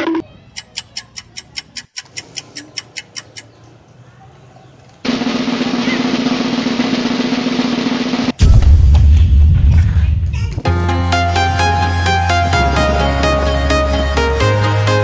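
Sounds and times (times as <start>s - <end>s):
rapid sharp ticks: 0.6s - 3.6s
deep bass-heavy sound: 8.4s - 15.0s.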